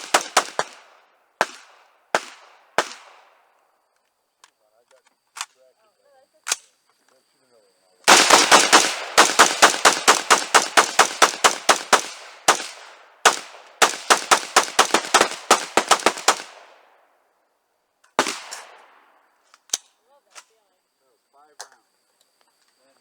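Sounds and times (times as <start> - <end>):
gunshots: 0.0 - 3.4, 8.1 - 16.9, 18.2 - 19.0.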